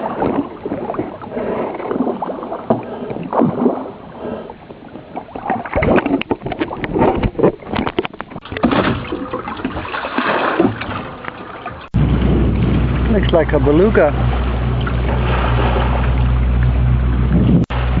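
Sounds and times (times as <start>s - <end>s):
sea water sloshing around boat: 0.0s - 18.0s
short splashes and knocks: 5.3s - 16.8s.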